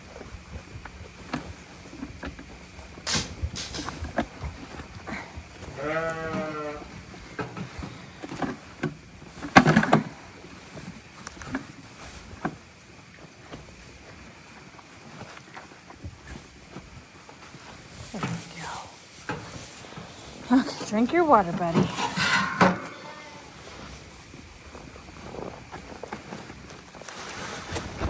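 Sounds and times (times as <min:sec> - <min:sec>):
sheep or goat bleat: 0:05.7 - 0:06.9, 0:22.1 - 0:23.6
rustling: 0:06.9 - 0:28.0.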